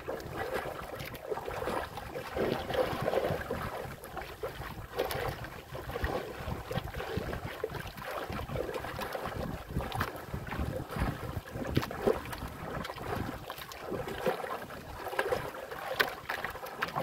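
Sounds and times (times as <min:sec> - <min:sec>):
water splashing against boat hull: 0:00.0 - 0:17.0
wind buffeting microphone: 0:02.3 - 0:13.4.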